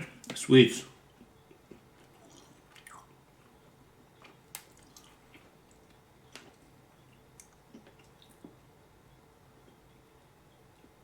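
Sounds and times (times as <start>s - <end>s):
mouth chewing candy: 1.5s - 3.6s.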